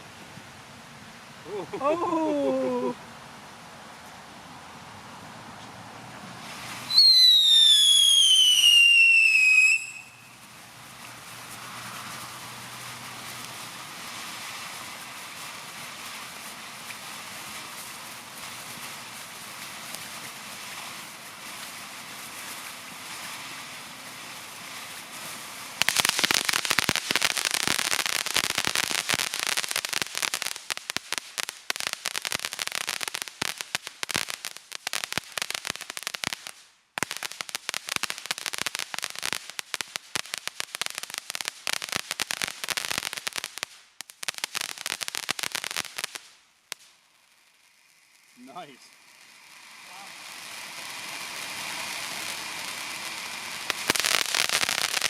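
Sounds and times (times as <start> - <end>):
firecrackers crackling: 1.4 - 3.0, 5.7 - 55.0
fireworks hissing: 1.4 - 3.0, 5.6 - 55.0.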